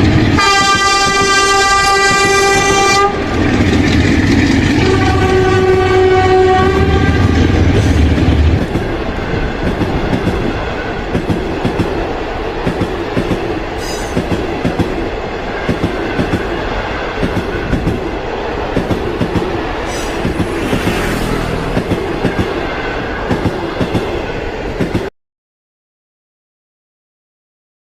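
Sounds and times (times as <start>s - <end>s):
train rumble: 0.0s - 25.1s
wheels clacking over rail joints: 0.0s - 25.1s
train horn: 0.3s - 3.4s, 4.7s - 7.7s.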